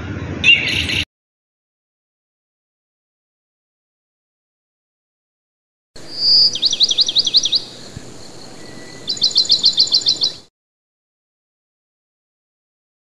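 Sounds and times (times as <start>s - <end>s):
bird singing trills: 0.4s - 1.1s, 6.0s - 10.5s.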